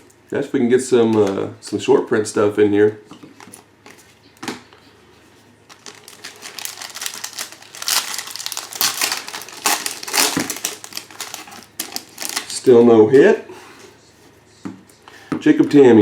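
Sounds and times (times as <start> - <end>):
foil wrapper crinkling: 5.7 - 12.8.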